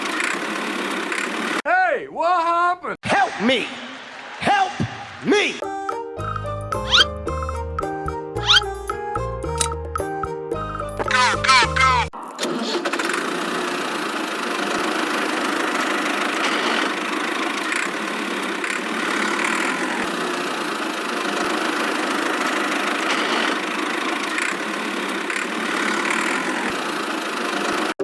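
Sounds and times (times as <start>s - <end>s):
small motor running: 12.6s - 27.9s.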